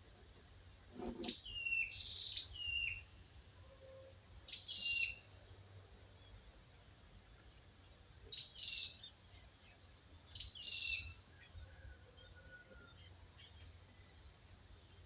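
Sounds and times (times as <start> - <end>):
songbird singing: 0.8 - 3.2, 4.4 - 15.0
faint thin whistle: 1.0 - 1.6.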